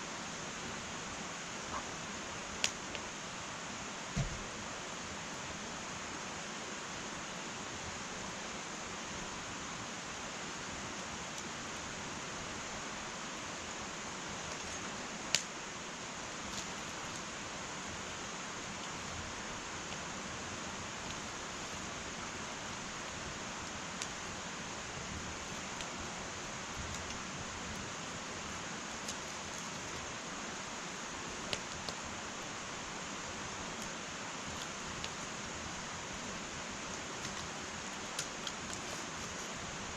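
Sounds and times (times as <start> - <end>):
wood fire hissing: 0.0 - 39.9
fire crackling and popping: 2.5 - 3.1, 13.4 - 39.9.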